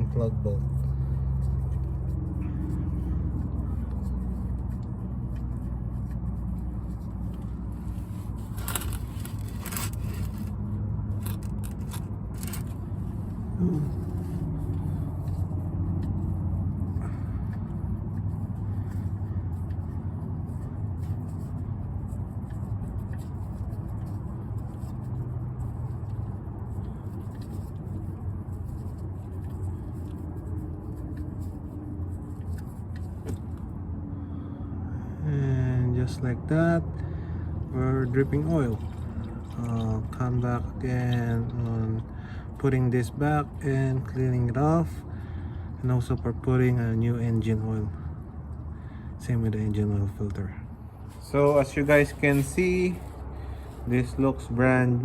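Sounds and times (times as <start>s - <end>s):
steady low hum: 0.0s - 55.0s
wrench clicking and scraping: 8.4s - 12.8s.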